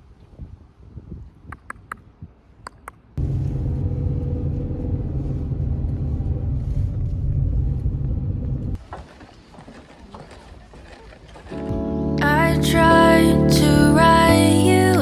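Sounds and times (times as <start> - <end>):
vehicle engine rumble: 3.2 - 10.6.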